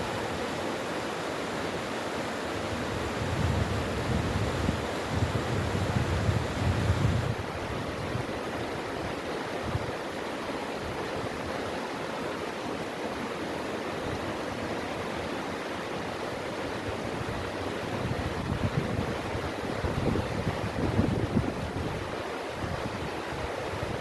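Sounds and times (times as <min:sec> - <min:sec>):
stream rushing over rocks: 0:00.0 - 0:24.0
wind rumble on microphone: 0:02.6 - 0:08.5, 0:16.8 - 0:24.0.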